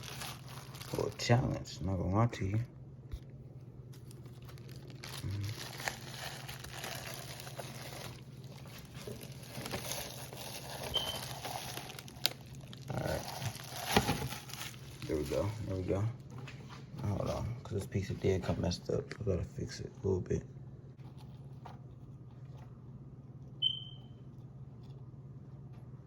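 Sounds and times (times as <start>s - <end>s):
plastic wrapping crinkling: 0.0s - 1.6s, 3.8s - 15.9s.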